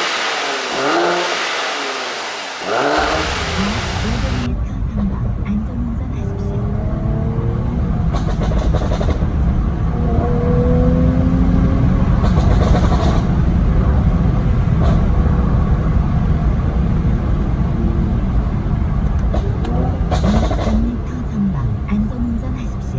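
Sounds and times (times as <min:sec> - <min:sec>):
exhaust pops and crackles: 0:00.0 - 0:04.5
car engine low rumble: 0:00.0 - 0:22.9.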